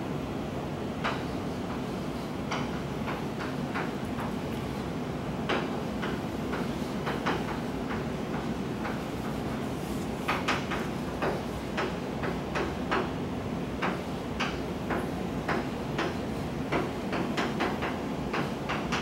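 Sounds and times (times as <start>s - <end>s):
sharp clicks and knocks: 2.5s - 4.6s, 5.4s - 13.1s, 13.8s - 19.0s.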